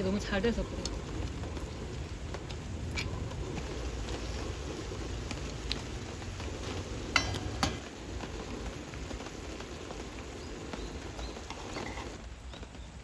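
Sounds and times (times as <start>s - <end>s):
steady rain pattering: 0.0s - 13.0s.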